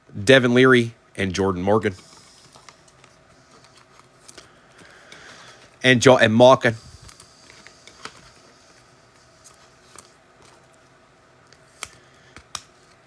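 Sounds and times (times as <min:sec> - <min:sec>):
trading cards clicking and rustling: 0:01.9 - 0:05.8, 0:07.0 - 0:13.0.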